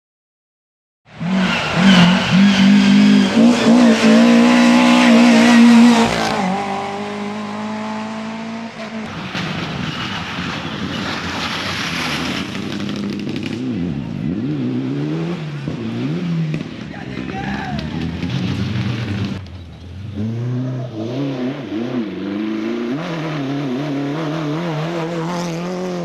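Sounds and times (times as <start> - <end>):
racing car engine passing by: 1.1 - 13.1.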